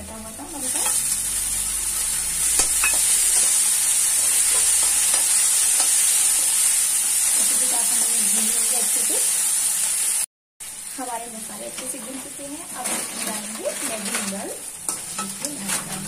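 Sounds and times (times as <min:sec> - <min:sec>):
food sizzling in hot oil: 0:00.2 - 0:16.0
steel spoon scraping a pan: 0:12.0 - 0:16.0.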